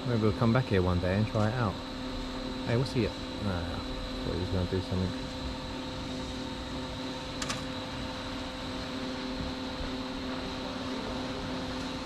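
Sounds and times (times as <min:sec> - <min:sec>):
machine hum with droning tones: 0:00.0 - 0:12.0.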